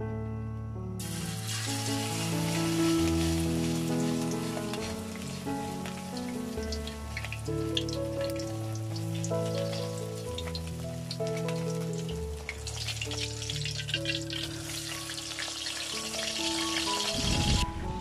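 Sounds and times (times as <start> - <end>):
fritter sizzling in hot oil: 1.0 - 17.6.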